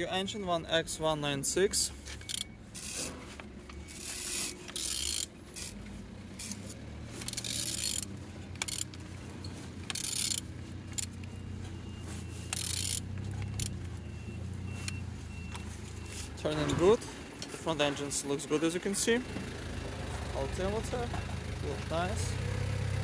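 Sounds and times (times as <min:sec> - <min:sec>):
ratchet clicking: 0:02.2 - 0:03.1, 0:03.9 - 0:05.8, 0:06.4 - 0:09.0, 0:09.8 - 0:11.2, 0:12.5 - 0:13.8
metal rattle: 0:02.2 - 0:11.2, 0:12.5 - 0:13.8.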